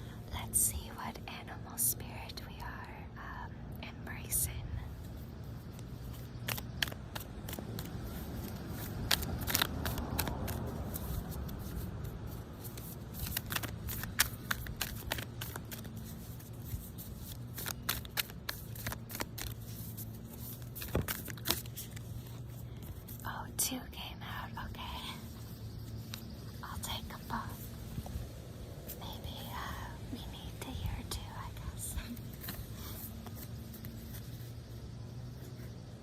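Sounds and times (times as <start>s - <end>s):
cards being shuffled: 5.0s - 23.3s, 25.2s - 29.0s, 32.0s - 34.6s.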